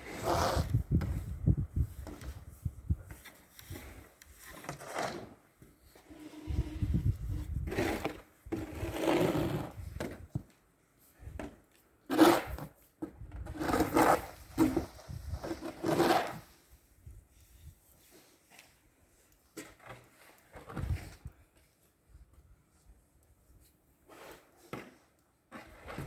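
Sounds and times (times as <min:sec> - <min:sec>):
snow shovel scraping snow: 0:00.0 - 0:00.8, 0:06.0 - 0:09.9, 0:12.1 - 0:12.7, 0:13.5 - 0:16.6, 0:24.1 - 0:26.0.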